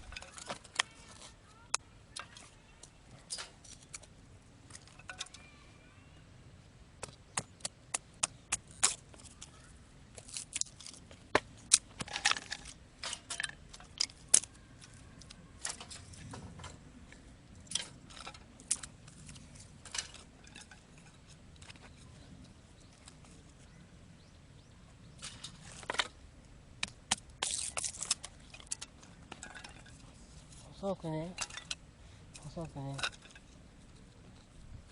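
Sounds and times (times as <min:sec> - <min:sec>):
thin wood snapping: 0:10.2 - 0:15.9, 0:26.8 - 0:29.9.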